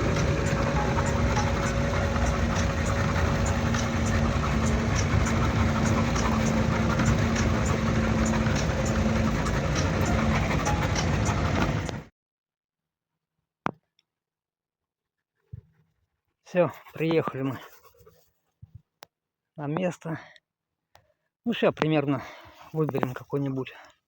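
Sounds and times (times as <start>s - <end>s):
car engine and road noise: 0.0s - 12.1s.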